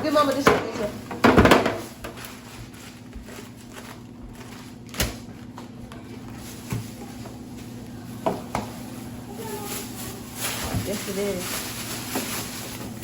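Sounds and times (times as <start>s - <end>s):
knocks in a kitchen: 0.0s - 2.2s, 8.2s - 8.8s
steady low hum: 0.0s - 13.0s.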